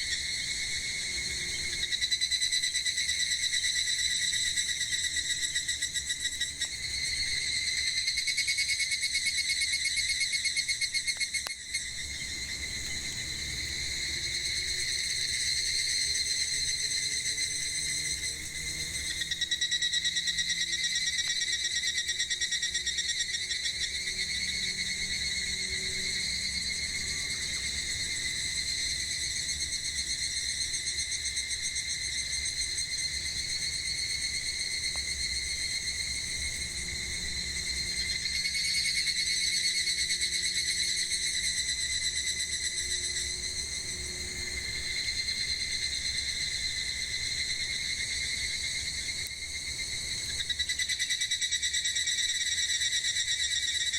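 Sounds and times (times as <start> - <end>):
cicadas buzzing: 0.0 - 53.9.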